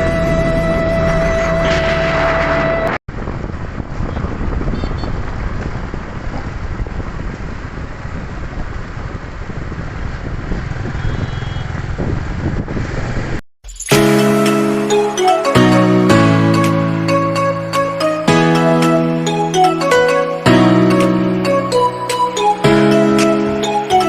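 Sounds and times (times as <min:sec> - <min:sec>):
background music: 0:00.0 - 0:03.0, 0:13.9 - 0:24.0
motorcycle engine riding: 0:00.0 - 0:13.4
road noise: 0:00.0 - 0:13.4, 0:14.0 - 0:24.0
wind buffeting microphone: 0:02.6 - 0:13.4.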